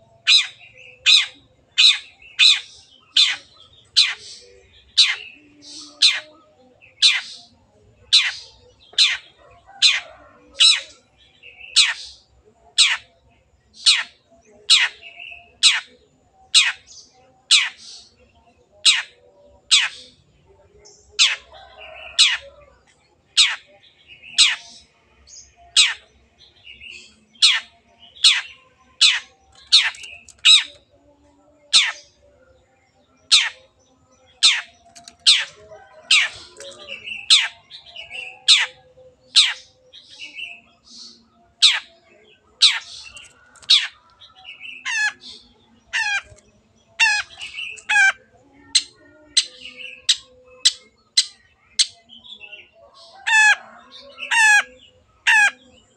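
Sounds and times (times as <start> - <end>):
rasping buzzy bird calls: 27.4 - 30.9, 34.3 - 39.7, 44.7 - 46.4, 47.0 - 52.0, 53.0 - 55.6.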